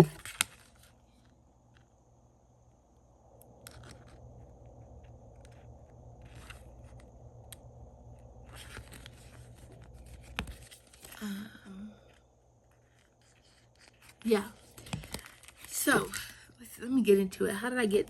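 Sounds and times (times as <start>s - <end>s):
paper rustling: 0.0s - 1.4s, 5.3s - 7.1s, 8.4s - 11.2s, 12.0s - 16.4s
journals scraping: 8.4s - 11.2s, 12.7s - 16.4s.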